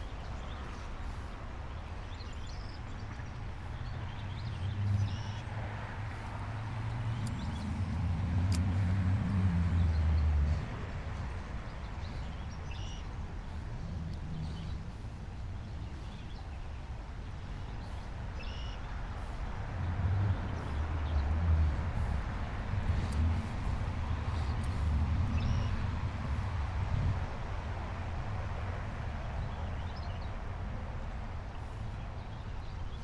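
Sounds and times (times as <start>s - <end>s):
motor vehicle passing: 3.5s - 16.2s, 19.0s - 29.8s.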